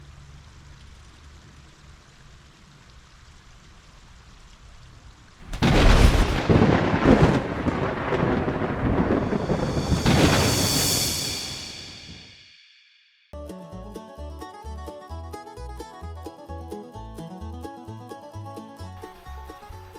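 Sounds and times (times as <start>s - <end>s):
rain rushing: 0.0s - 12.4s
faint hiss: 0.0s - 12.6s
thunder rumble: 5.4s - 12.4s.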